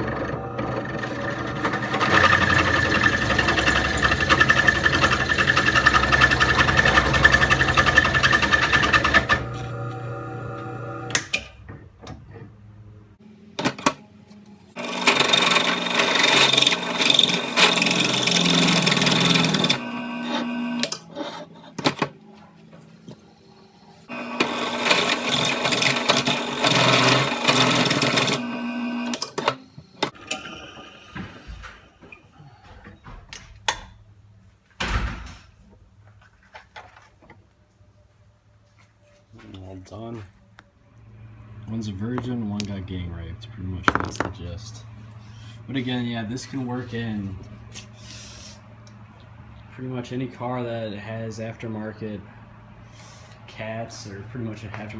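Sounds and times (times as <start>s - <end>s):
electric drill boring metal: 0.0s - 11.2s, 14.8s - 20.9s, 24.1s - 29.4s.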